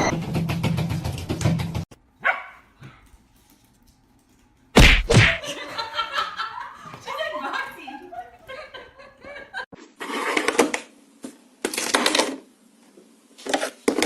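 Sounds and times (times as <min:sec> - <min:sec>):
dog yelping: 0:02.2 - 0:02.7
dog barking: 0:02.2 - 0:03.0.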